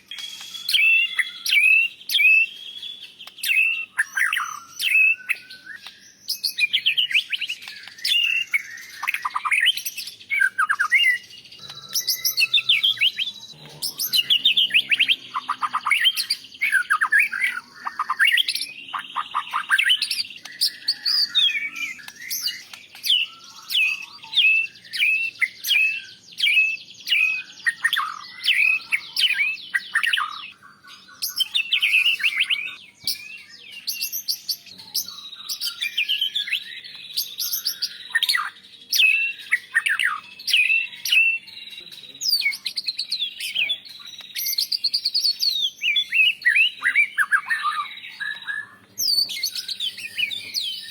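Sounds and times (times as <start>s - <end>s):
bird singing whistled notes: 0.0s - 50.9s.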